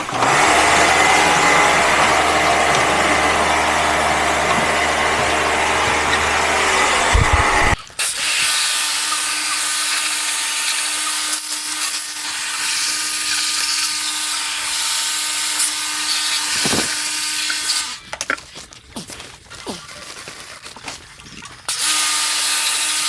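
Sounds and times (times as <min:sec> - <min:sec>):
small motorised tool humming: 0:00.0 - 0:07.8, 0:09.0 - 0:18.0.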